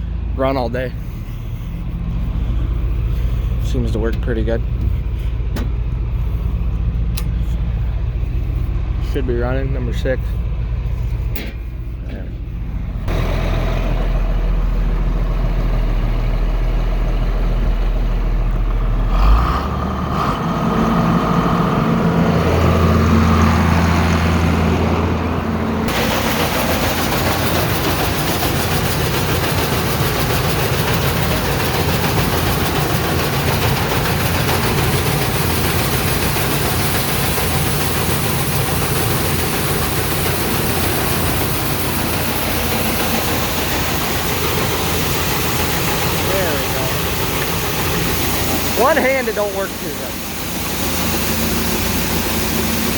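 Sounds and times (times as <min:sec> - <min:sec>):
tractor engine running: 0:00.0 - 0:52.9
loud rushing hiss: 0:25.8 - 0:52.9.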